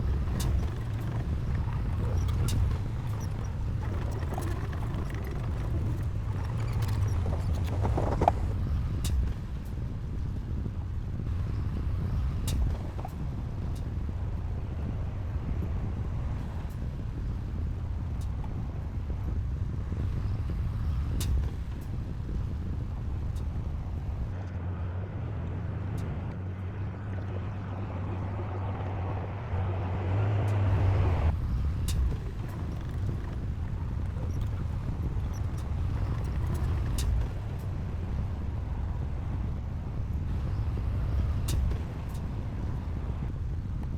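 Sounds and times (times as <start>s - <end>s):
heavy diesel engine running: 0.0s - 8.6s.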